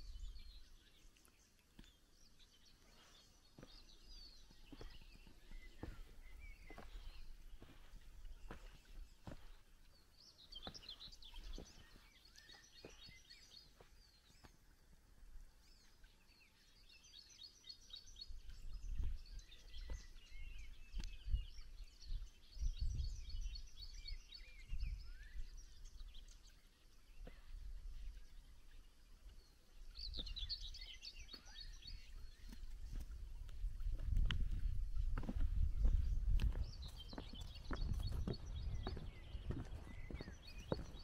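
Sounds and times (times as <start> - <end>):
songbirds singing trilled phrases: 0.0 - 14.7, 15.5 - 41.0
soft footsteps: 2.8 - 14.7, 31.3 - 41.0.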